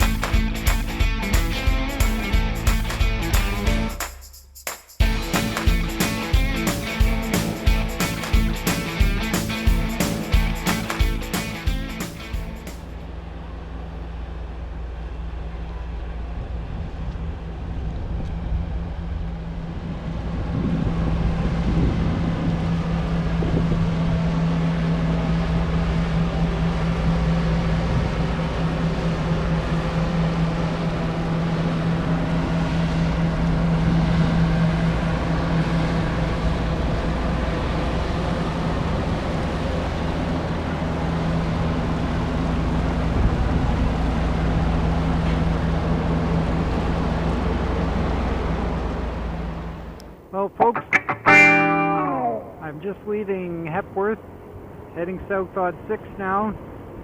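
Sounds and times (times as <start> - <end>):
wind noise on microphone: 16.2 - 26.7, 41.5 - 45.1.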